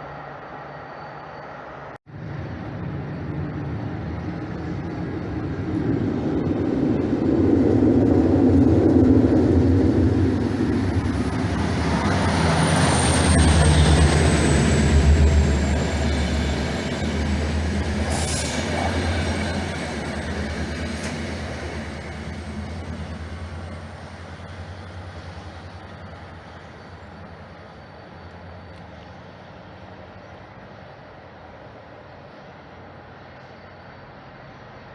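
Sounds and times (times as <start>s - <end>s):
passenger train rumbling: 0.0s - 34.9s
high wheel squeal: 8.6s - 28.5s.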